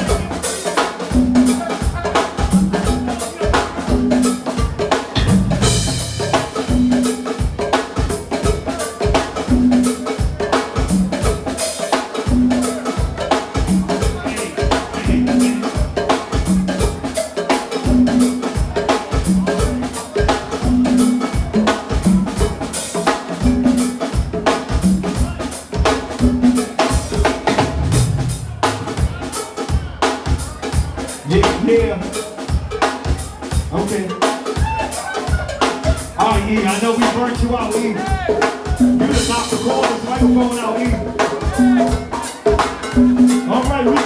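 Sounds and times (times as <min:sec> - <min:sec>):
drum groove: 0:00.0 - 0:44.0
bass line: 0:01.1 - 0:08.7, 0:12.3 - 0:17.1, 0:27.4 - 0:29.2, 0:36.1 - 0:44.0.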